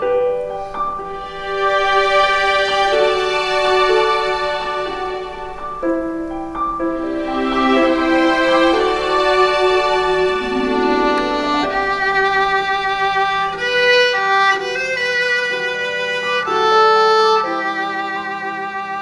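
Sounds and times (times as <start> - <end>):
violin playing slow melody: 1.0 - 19.0
low accompaniment tone: 1.5 - 15.0.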